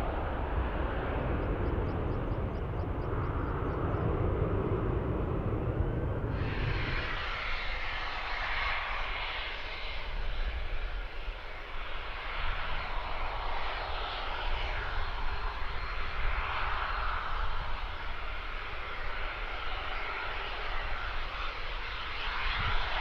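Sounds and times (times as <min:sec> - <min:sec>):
jet engine rushing: 0:00.0 - 0:23.0.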